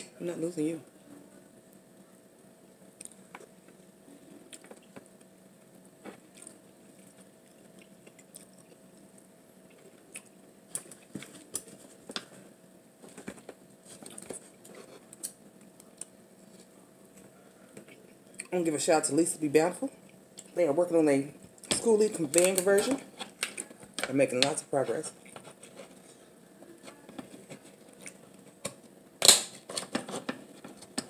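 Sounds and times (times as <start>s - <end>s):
chewing lobster meat: 6.0s - 12.4s, 25.1s - 28.9s.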